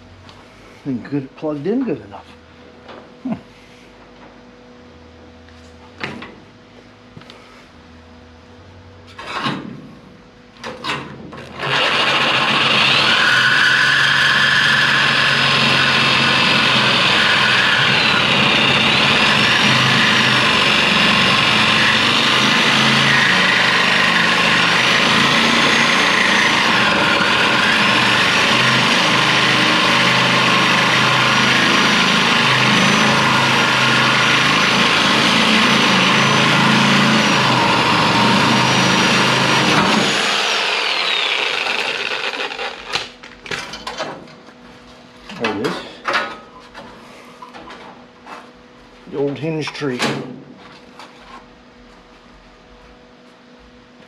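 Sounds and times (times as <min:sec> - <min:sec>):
reciprocating saw cutting sheet metal: 0:11.5 - 0:43.1.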